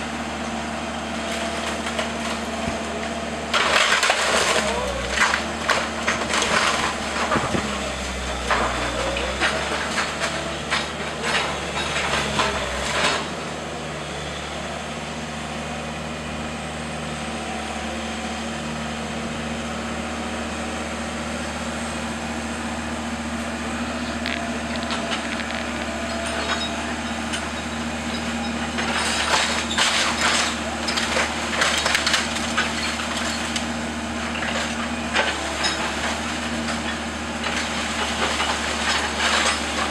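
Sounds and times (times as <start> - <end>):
heavy machine engine running: 0.0 - 39.9
faint debris crackles: 0.4 - 13.4, 22.4 - 39.9
wood cracking and splintering: 1.3 - 13.3, 24.1 - 26.5, 28.8 - 33.8, 34.4 - 39.9.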